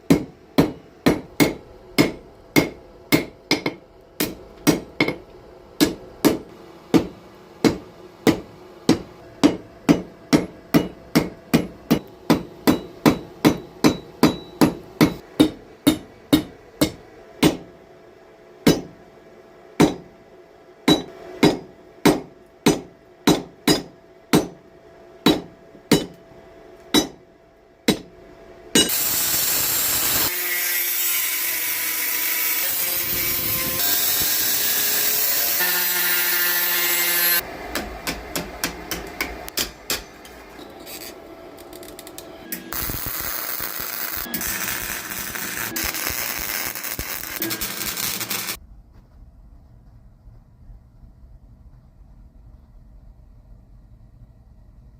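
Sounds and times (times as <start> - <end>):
hammer striking metal on anvil: 0.1 - 5.2, 5.8 - 17.7, 18.6 - 19.0, 19.8 - 20.1, 20.9 - 24.6, 25.2 - 26.2, 26.9 - 27.2, 27.9 - 28.1, 28.7 - 29.1, 37.7 - 40.4.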